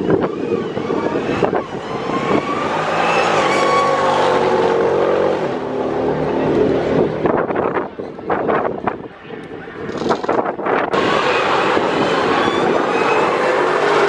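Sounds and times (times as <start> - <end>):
drag car engine passing: 0.0 - 7.4, 11.0 - 14.0.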